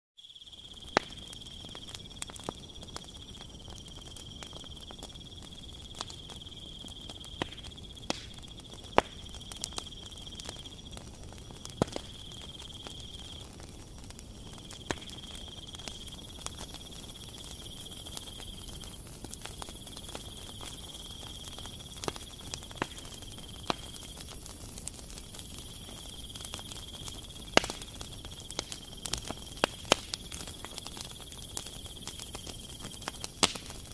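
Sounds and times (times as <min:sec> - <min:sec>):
cricket trilling: 0:00.2 - 0:13.6, 0:14.5 - 0:33.9
sharp clicks and crackles: 0:07.1 - 0:33.9.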